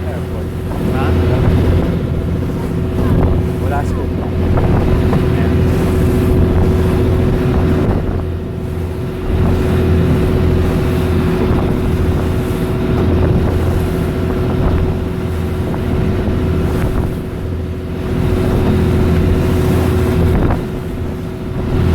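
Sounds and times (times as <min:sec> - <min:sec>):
motorboat engine running: 0:00.0 - 0:21.9
wind buffeting microphone: 0:00.0 - 0:21.9.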